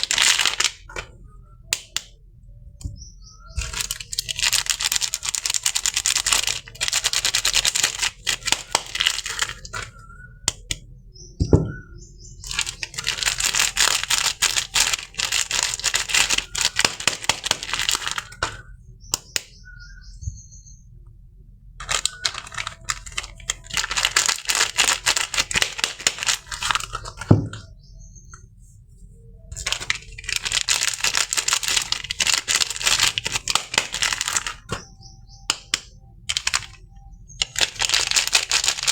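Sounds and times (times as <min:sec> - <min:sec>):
packaging crinkling and tearing: 0:00.0 - 0:01.1, 0:03.5 - 0:10.8, 0:12.4 - 0:18.7, 0:21.8 - 0:27.7, 0:29.5 - 0:38.9.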